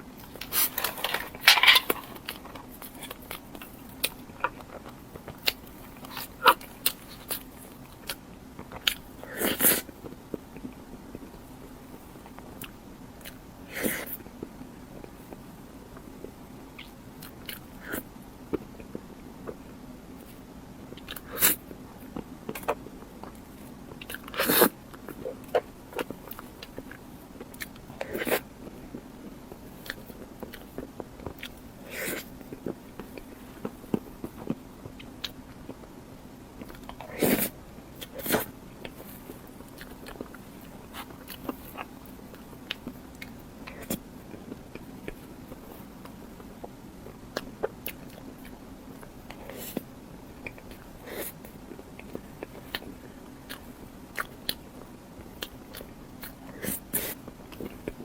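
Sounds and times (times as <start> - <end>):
faint steady hum: 0.0 - 58.0
chewing and biting: 0.2 - 11.4, 20.2 - 35.9, 36.6 - 58.0
food crunching: 0.2 - 11.5, 36.6 - 58.0.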